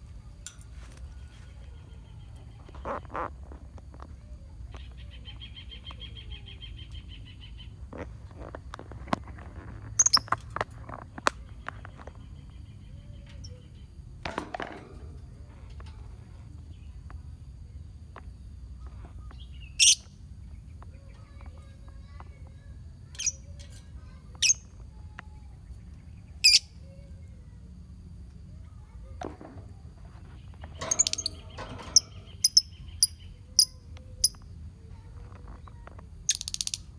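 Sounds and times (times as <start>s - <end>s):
bird chirps: 10.0s - 10.4s, 23.1s - 24.8s, 30.4s - 34.4s, 36.3s - 36.9s
lovebirds shrill calls: 19.5s - 20.1s, 30.7s - 34.4s.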